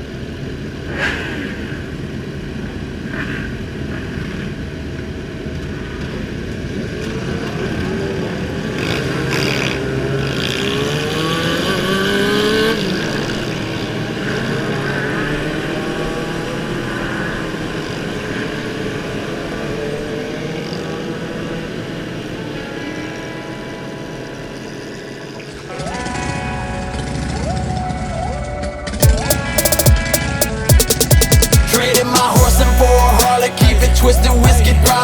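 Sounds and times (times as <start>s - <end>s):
motorcycle engines running: 5.9s - 22.3s
motorcycle accelerating: 6.6s - 23.0s.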